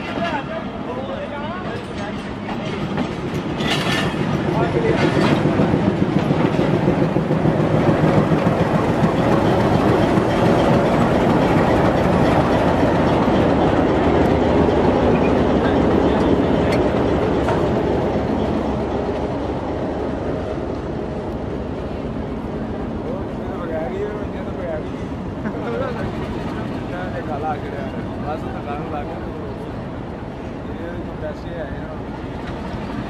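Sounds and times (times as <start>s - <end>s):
train wheels clacking over rail joints: 1.5s - 22.0s.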